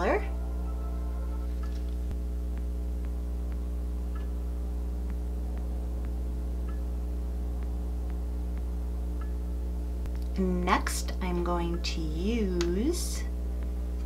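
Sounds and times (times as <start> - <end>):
low electrical hum: 0.0 - 14.0
faint soft ticks: 7.6 - 9.4.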